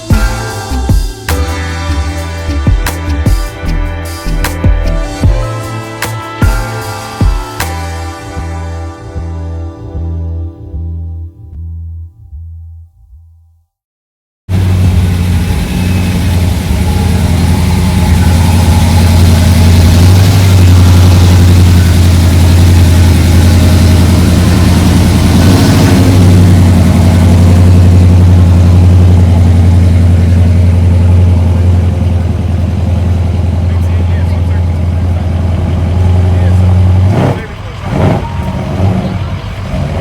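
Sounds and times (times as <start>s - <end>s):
car engine running: 14.5s - 40.0s.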